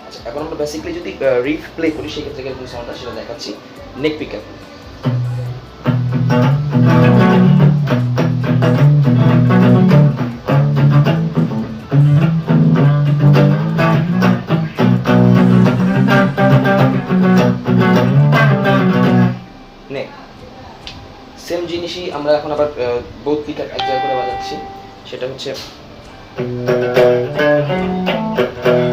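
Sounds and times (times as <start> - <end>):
clean electric guitar riff: 5.0 - 19.6, 23.8 - 25.5, 26.2 - 28.9.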